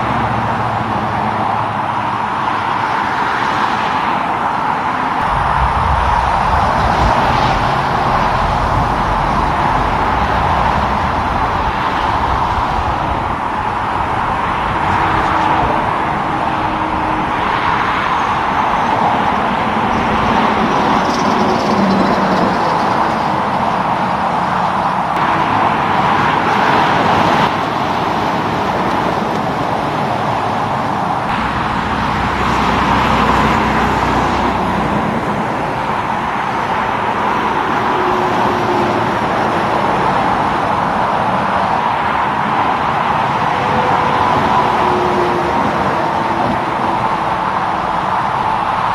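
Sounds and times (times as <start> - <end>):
cars and trucks passing: 0.0 - 48.9.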